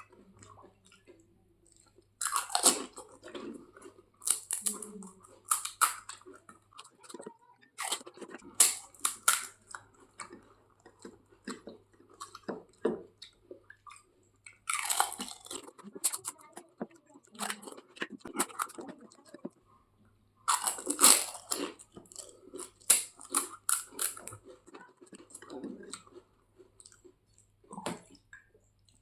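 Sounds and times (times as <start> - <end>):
crunching crisp shells: 2.2 - 6.4, 7.8 - 10.4, 14.6 - 16.3, 20.5 - 24.5.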